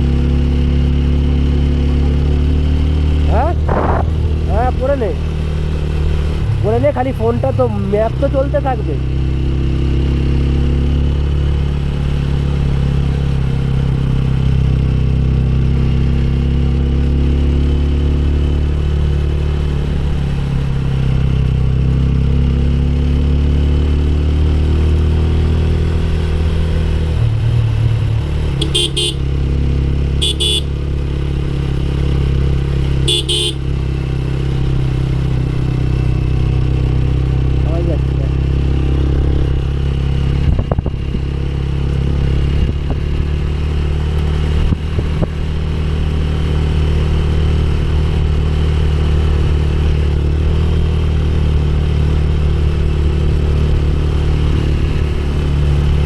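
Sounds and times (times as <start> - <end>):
motorcycle engine running: 0.0 - 56.0
wind on microphone: 3.6 - 4.6
horn short beeps: 28.6 - 29.2, 30.2 - 30.7, 33.1 - 33.6.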